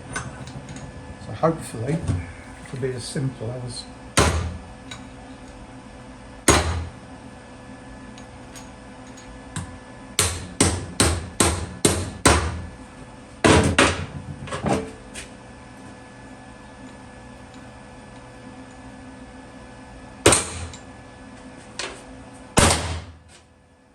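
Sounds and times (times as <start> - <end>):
hammer striking steel tube: 6.5 - 6.9.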